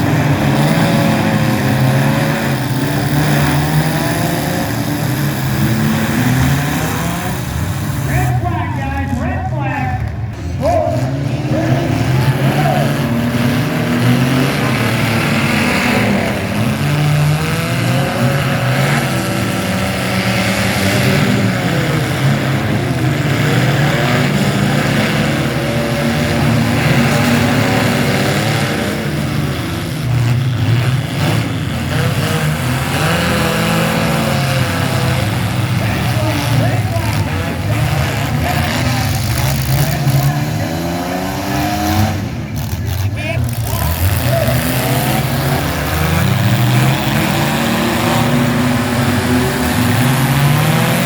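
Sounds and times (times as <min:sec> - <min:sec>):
truck engines revving: 0:00.0 - 0:51.0.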